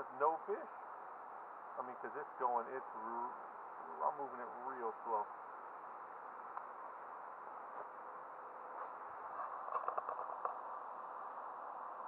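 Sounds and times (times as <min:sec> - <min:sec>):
small clicks: 0:09.7 - 0:10.6.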